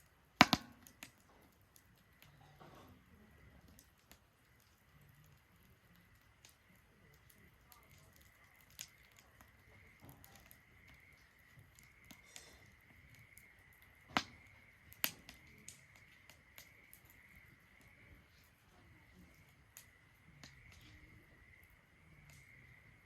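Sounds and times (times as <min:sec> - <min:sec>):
wood fire crackling: 0:00.0 - 0:23.0
faint steady high tone: 0:07.8 - 0:23.0.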